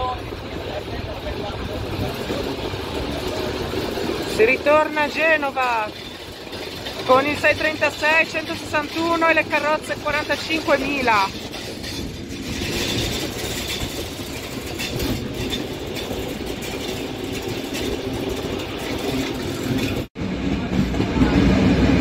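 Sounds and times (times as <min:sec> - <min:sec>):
wheels rumbling on rail: 0:00.0 - 0:22.0.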